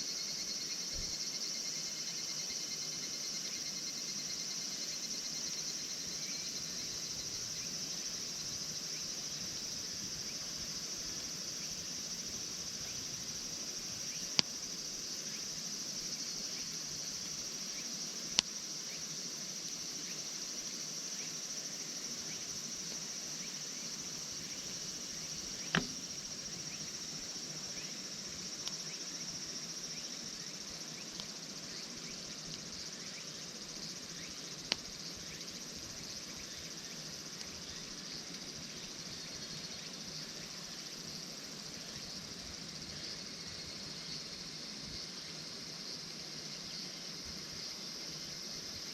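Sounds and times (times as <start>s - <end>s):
crickets chirring: 0.0s - 48.9s
campfire wood popping: 25.6s - 26.4s.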